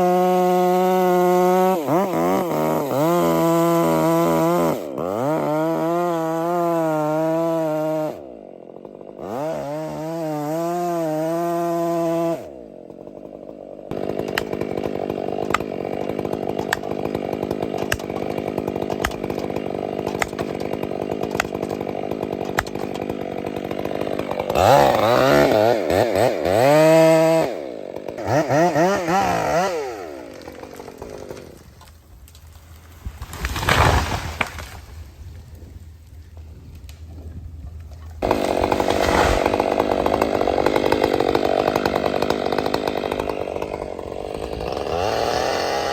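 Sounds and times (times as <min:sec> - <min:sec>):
chainsaw cutting timber: 0:00.0 - 0:45.9.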